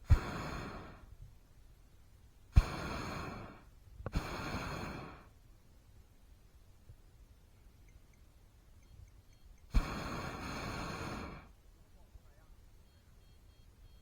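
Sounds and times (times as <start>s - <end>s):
propane burner blasts hissing: 0.0s - 1.4s, 2.4s - 5.5s, 9.6s - 11.6s.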